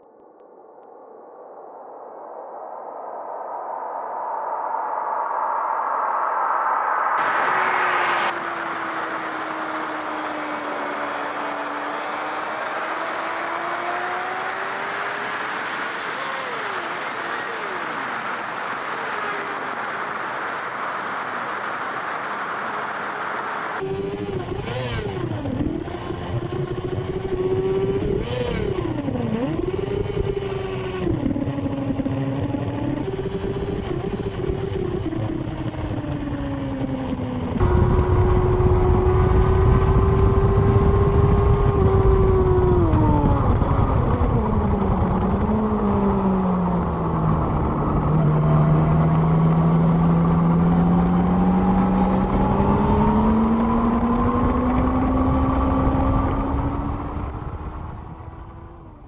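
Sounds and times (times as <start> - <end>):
motorcycle engine revving: 7.2 - 59.0
wind rush on microphone: 23.7 - 59.0.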